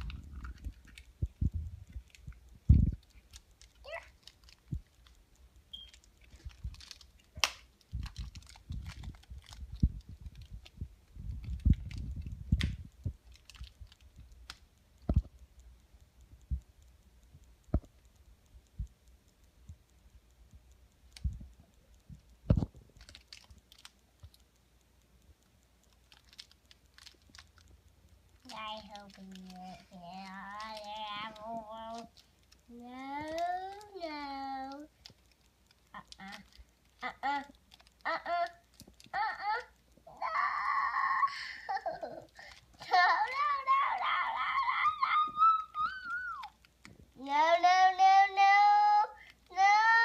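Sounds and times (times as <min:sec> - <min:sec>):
soft low thumps: 0:00.0 - 0:03.1, 0:16.2 - 0:19.9
packaging clicks and crinkles: 0:00.0 - 0:15.4, 0:22.5 - 0:24.6, 0:25.4 - 0:47.2.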